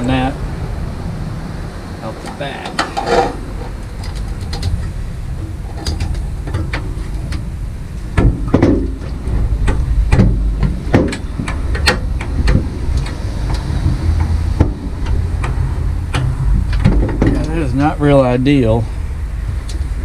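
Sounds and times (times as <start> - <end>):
steady low rumble: 0.0 - 20.0
intake pipe clicks and knocks: 2.2 - 7.5, 8.1 - 17.8.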